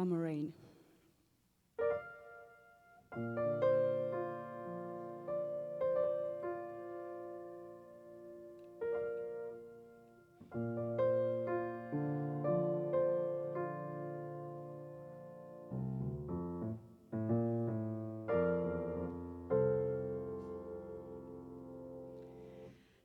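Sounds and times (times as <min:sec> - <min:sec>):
piano chords ringing: 0:01.8 - 0:22.6.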